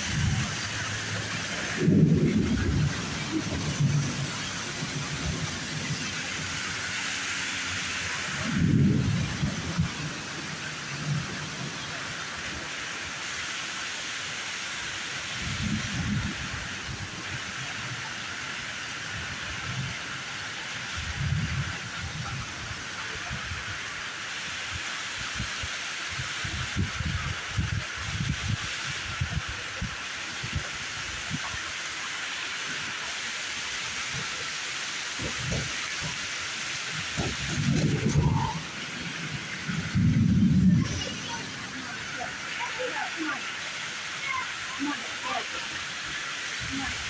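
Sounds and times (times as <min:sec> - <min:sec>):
thunder rumbles: 0:00.0 - 0:12.8, 0:35.1 - 0:44.1
heavy rain hissing: 0:00.0 - 0:47.0.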